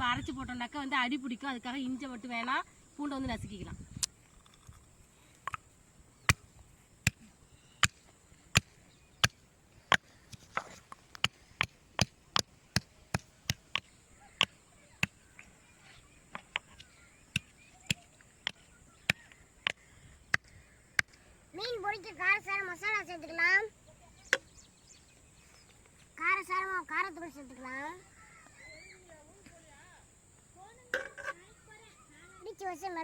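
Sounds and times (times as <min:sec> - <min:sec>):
pestle pounding in mortar: 0:08.6 - 0:15.2.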